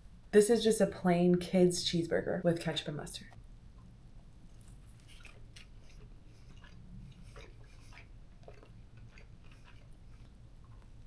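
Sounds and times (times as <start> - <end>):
steady low hum: 0.0 - 11.0
chewing and biting food: 4.5 - 11.0.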